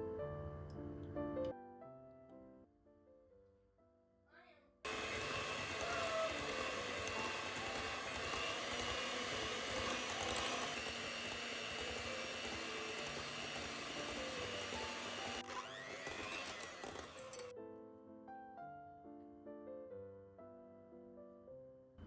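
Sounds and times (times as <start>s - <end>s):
kitchen appliance motor running: 4.9s - 17.5s
soft background music: 17.5s - 22.0s.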